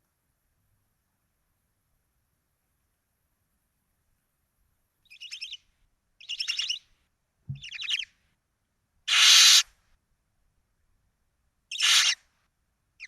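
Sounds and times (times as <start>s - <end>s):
owls twittering: 5.1s - 5.6s, 6.2s - 6.8s, 7.5s - 8.1s, 9.1s - 9.7s, 11.7s - 12.2s
soft low bump: 7.5s - 7.7s
owl harsh hiss: 9.1s - 9.7s, 11.7s - 12.2s.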